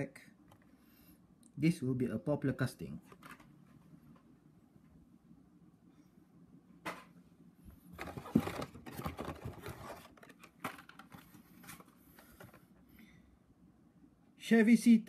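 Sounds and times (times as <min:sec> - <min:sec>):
plastic and cardboard rustling: 0:03.0 - 0:03.8, 0:07.8 - 0:12.8.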